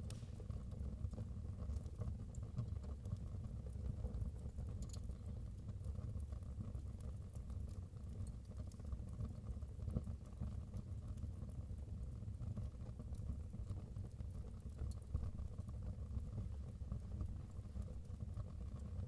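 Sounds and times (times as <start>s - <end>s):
fire crackling and popping: 0.0s - 3.9s.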